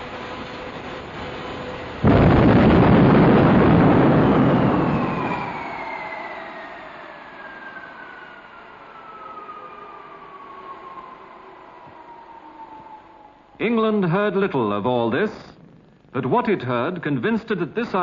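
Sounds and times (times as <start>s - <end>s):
jet turbine roar: 0.0s - 13.9s
turbine whine falling in pitch: 0.0s - 14.6s.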